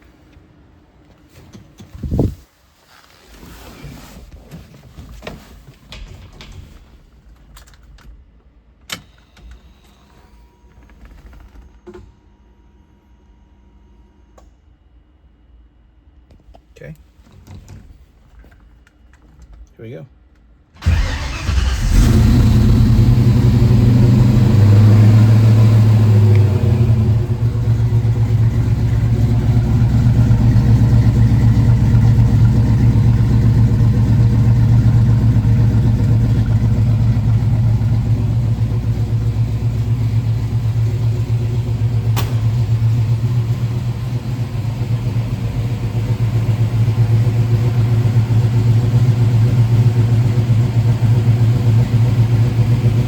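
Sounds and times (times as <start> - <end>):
car engine starting and idling: 20.8 - 53.0.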